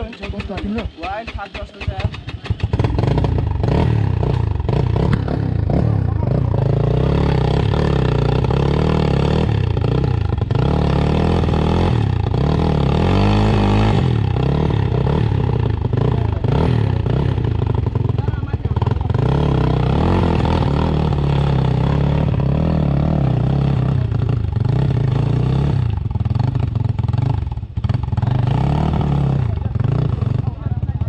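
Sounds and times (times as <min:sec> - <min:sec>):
sharp clicks: 0:00.0 - 0:03.0
dirt bike engine revving: 0:00.0 - 0:31.0.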